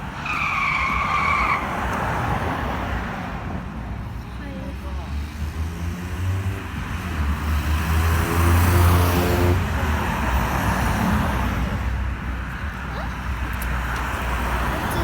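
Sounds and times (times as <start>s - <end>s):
vehicle passing by: 4.7s - 11.9s.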